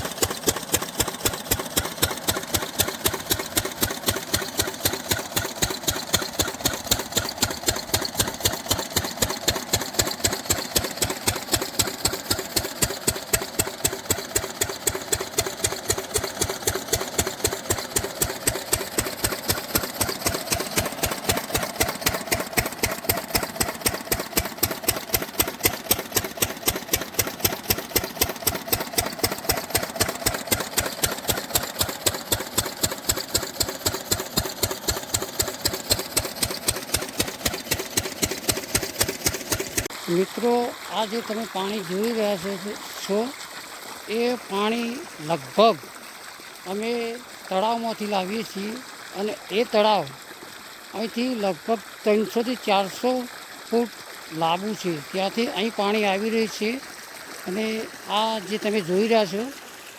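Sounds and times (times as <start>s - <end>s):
diesel engine knocking: 0.0s - 39.9s.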